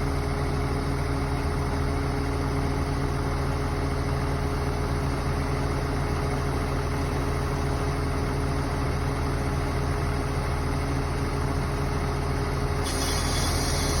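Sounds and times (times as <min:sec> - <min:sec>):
diesel engine idling: 0:00.0 - 0:14.0
high hiss: 0:12.8 - 0:14.0.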